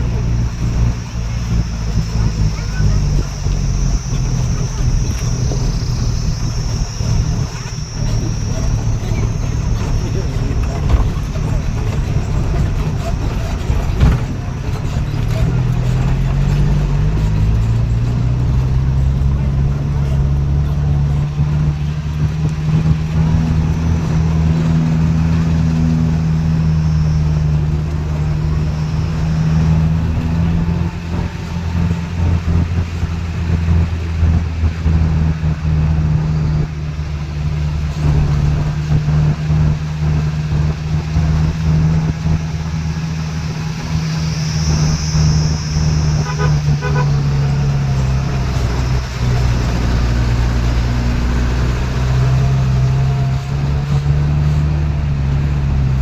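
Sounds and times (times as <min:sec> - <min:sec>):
vehicle engine droning: 0:00.0 - 0:56.0
short horn beeps: 0:45.6 - 0:48.0.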